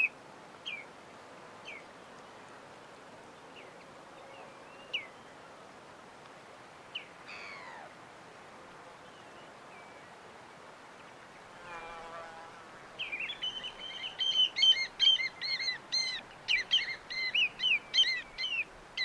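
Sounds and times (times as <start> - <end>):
faint background hiss: 0.0 - 19.0
bird chirps: 13.0 - 18.7.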